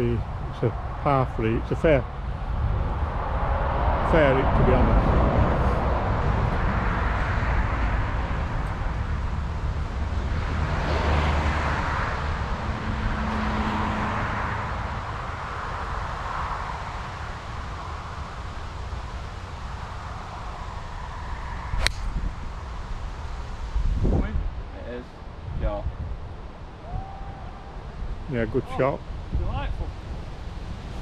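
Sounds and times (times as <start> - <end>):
wind buffeting microphone: 1.6 - 10.8, 15.4 - 28.3.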